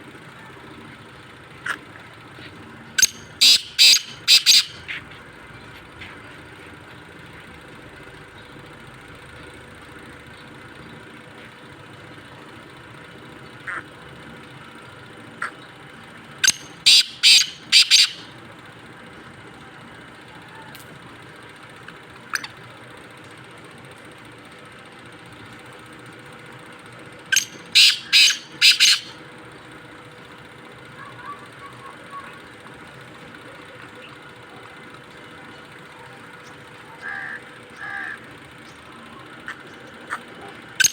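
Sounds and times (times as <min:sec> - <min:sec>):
low mechanical hum: 0:00.0 - 0:40.9
partridge calling harshly: 0:03.0 - 0:05.0, 0:16.4 - 0:18.3, 0:27.3 - 0:29.2, 0:36.4 - 0:38.8.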